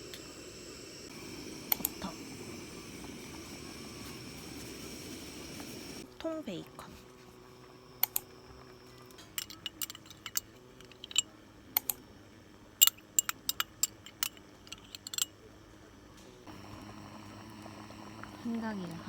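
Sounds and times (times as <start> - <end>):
faint steady hum: 0.0 - 19.0
utensils and containers clicking: 8.0 - 8.3, 8.9 - 12.0, 12.8 - 15.4.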